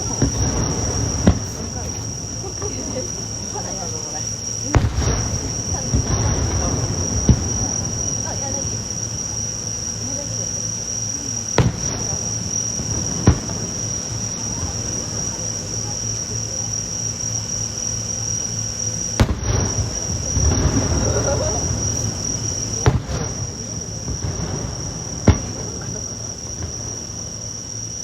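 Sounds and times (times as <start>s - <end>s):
crickets trilling: 0.0s - 28.0s
fireworks bursting: 0.0s - 28.0s.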